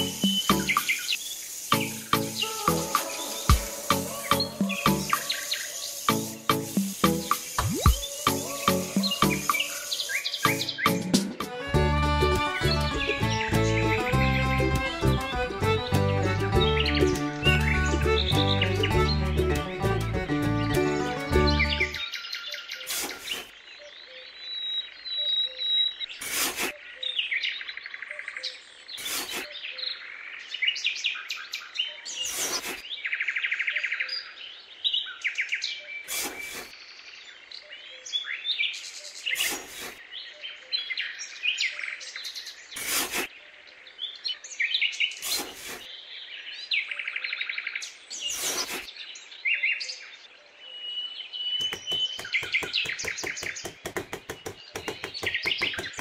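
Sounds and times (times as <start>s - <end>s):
trowel scraping sand: 0.0s - 11.6s, 22.8s - 23.5s, 26.2s - 26.8s, 29.0s - 29.5s, 32.2s - 32.8s, 36.1s - 36.7s, 39.4s - 40.0s, 42.8s - 43.3s, 45.2s - 45.9s, 48.2s - 48.9s
small birds chirping: 0.0s - 56.0s.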